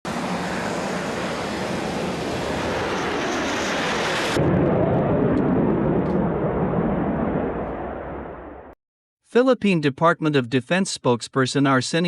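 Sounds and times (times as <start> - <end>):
jet fighter engine roar: 0.1 - 8.8.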